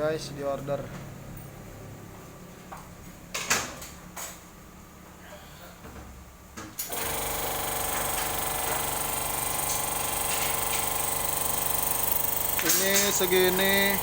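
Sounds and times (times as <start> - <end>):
printing press clattering: 7.8 - 14.0.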